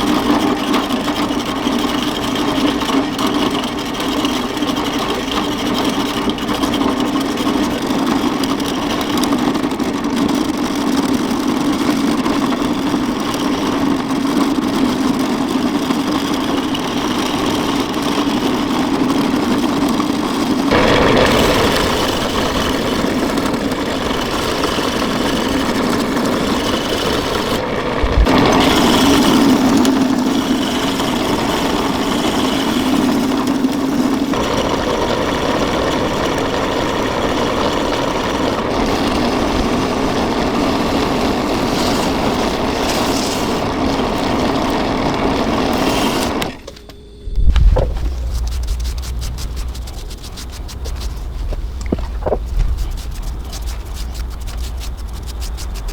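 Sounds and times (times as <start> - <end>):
motor humming: 20.7 - 33.2, 44.5 - 55.9.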